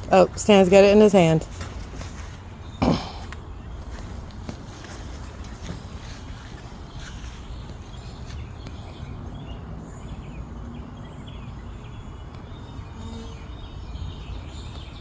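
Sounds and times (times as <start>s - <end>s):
small birds chirping: 0.0s - 15.0s
honeybees buzzing: 7.5s - 14.8s.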